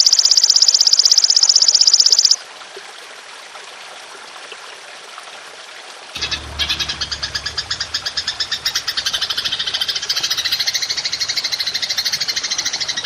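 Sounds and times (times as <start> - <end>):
grasshopper chirping trill: 0.0 - 2.4, 6.2 - 13.0.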